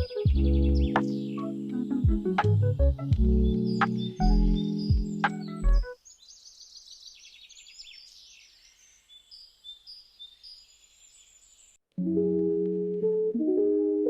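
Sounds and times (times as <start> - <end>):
guitar and keyboard music: 0.0 - 6.0, 12.0 - 14.0
birds chirping: 0.0 - 11.8.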